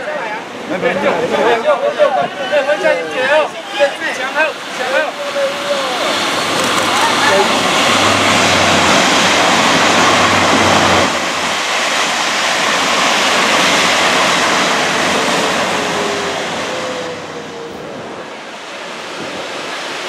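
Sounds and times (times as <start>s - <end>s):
train rolling rumble: 3.3s - 20.0s
low engine drone: 4.5s - 20.0s.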